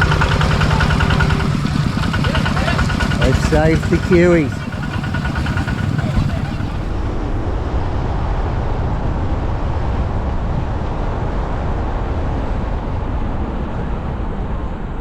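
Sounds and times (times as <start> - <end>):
vehicle engine: 0.0 - 7.2
road noise: 0.0 - 7.3.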